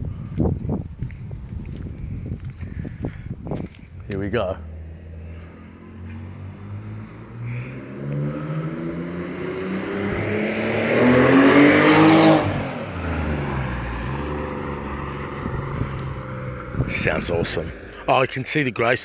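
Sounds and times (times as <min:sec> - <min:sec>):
car engine accelerating hard: 0:04.5 - 0:18.4.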